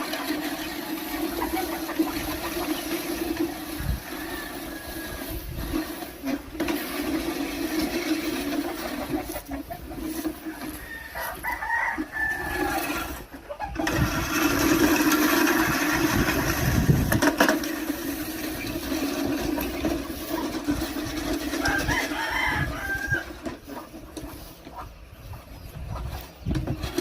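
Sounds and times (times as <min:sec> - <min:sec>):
rooster crowing: 0:10.6 - 0:13.2, 0:21.5 - 0:23.4.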